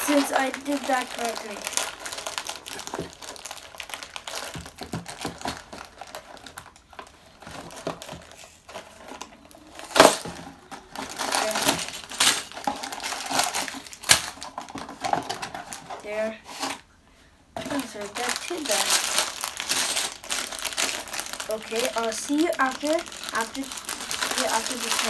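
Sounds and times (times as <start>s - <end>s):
plastic crinkling: 0.0s - 16.9s, 17.6s - 25.0s.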